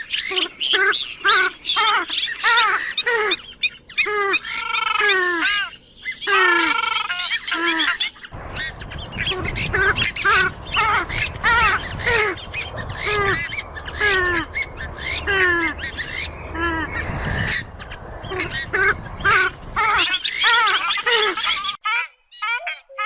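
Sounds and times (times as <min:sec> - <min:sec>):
bird squawking: 0:00.0 - 0:23.0.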